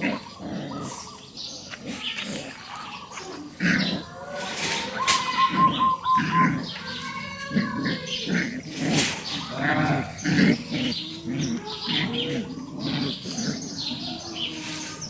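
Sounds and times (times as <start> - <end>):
birds chirping: 0.0 - 15.0
puppies whining and yelping: 2.8 - 8.3.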